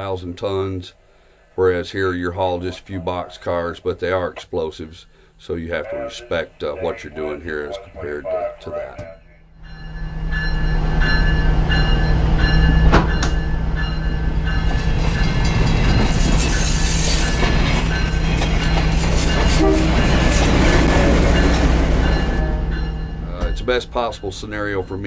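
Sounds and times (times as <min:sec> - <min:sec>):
locomotive engine drone: 0:05.6 - 0:25.0
rail clatter: 0:11.0 - 0:24.7.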